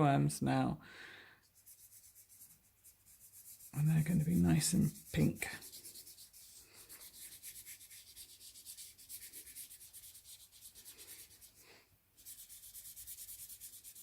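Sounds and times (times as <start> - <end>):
pencil scribbling on paper: 1.4 - 11.6, 12.2 - 14.0.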